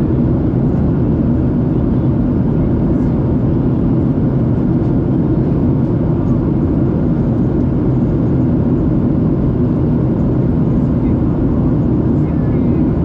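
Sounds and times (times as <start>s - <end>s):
airplane cabin roar: 0.0s - 13.0s.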